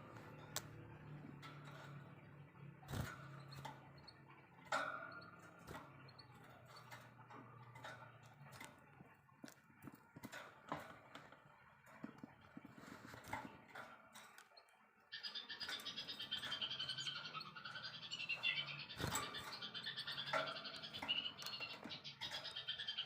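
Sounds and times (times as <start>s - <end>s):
bird chattering trill: 15.1s - 23.0s.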